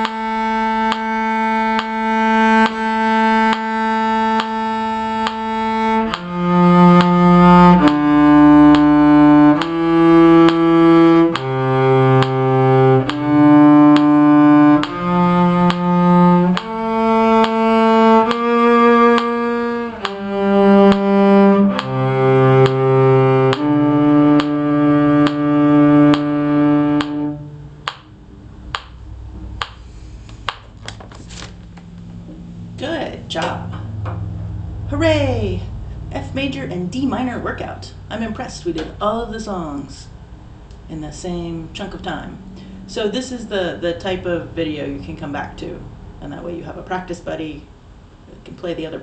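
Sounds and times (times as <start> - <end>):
cello playing slow bowed notes: 0.0 - 30.6, 31.5 - 38.5, 41.6 - 46.3
steady ticking: 0.0 - 30.7.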